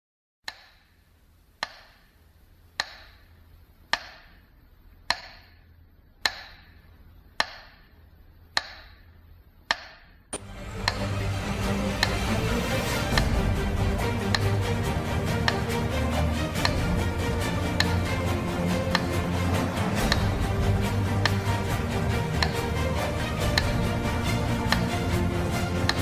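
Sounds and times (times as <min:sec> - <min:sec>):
music: 0:10.4 - 0:26.0.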